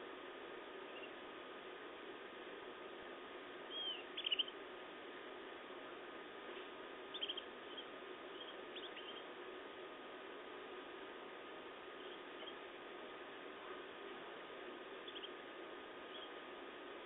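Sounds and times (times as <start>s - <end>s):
low background noise: 0.0s - 17.0s
canaries chirping: 3.7s - 4.6s, 7.1s - 9.3s, 12.0s - 12.6s, 15.0s - 15.4s, 16.1s - 16.4s.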